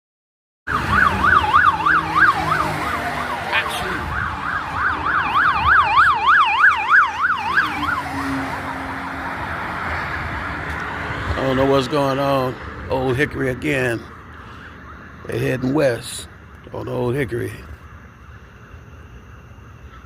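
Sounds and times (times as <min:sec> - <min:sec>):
police siren yelping: 0:00.7 - 0:10.5
passing traffic: 0:00.7 - 0:20.0.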